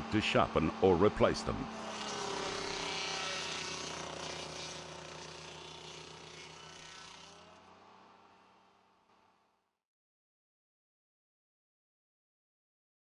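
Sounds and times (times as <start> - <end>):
stump grinder grinding: 0.4 - 9.0.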